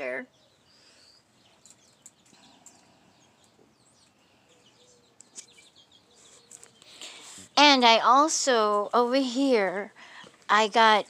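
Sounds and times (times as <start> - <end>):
faint high bird chirps: 0.0 - 8.1.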